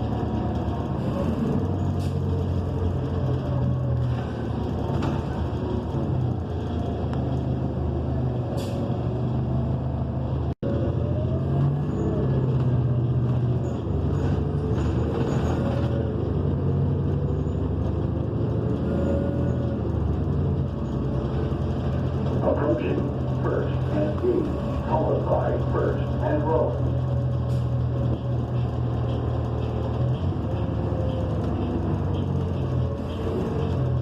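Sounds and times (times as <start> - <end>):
bus engine droning: 0.0 - 34.0
faint transmission whine: 10.3 - 34.0.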